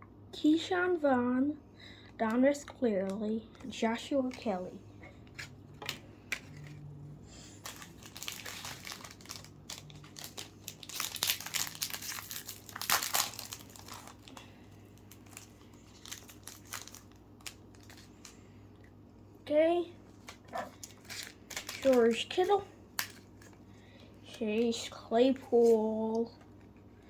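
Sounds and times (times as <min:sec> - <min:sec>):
plastic wrapper crinkling and tearing: 0:06.3 - 0:18.4, 0:20.1 - 0:24.7.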